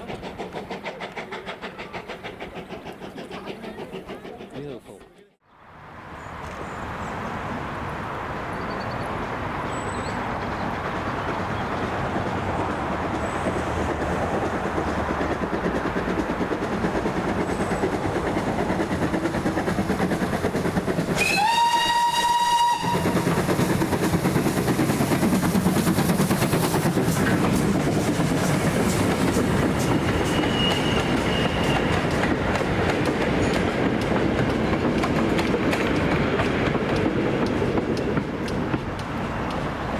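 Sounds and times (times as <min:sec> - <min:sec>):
steam locomotive running: 0:00.0 - 0:05.3, 0:09.1 - 0:39.9
steam whistle: 0:21.2 - 0:23.3, 0:30.0 - 0:32.0.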